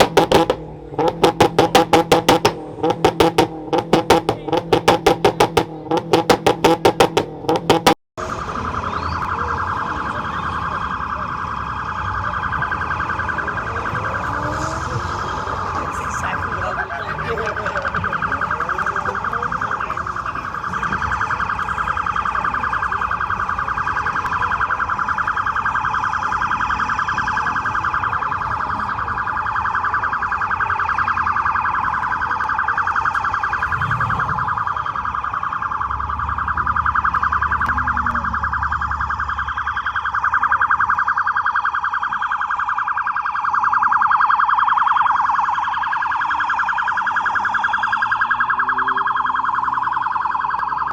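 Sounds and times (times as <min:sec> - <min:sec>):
car engine rumbling: 0:00.0 - 0:08.0
car alarm warbling: 0:00.0 - 0:50.9.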